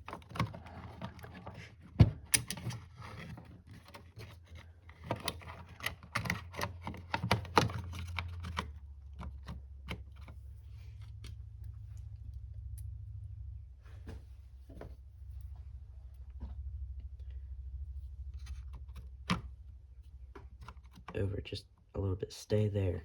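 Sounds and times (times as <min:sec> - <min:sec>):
steady low hum: 0:00.0 - 0:23.0
clicks taps and light rattling: 0:18.6 - 0:21.2.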